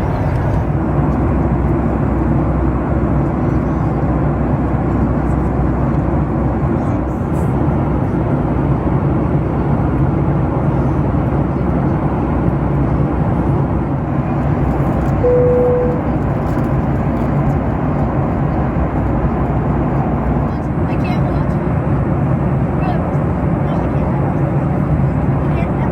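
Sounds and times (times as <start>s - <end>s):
airplane cabin roar: 0.0s - 25.9s
short steady tone: 15.2s - 16.2s.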